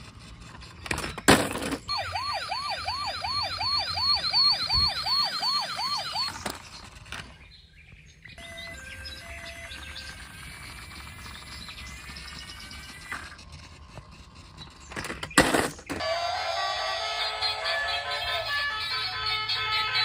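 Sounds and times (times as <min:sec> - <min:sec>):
toy police siren yelping: 0:01.9 - 0:06.8, 0:16.0 - 0:20.0.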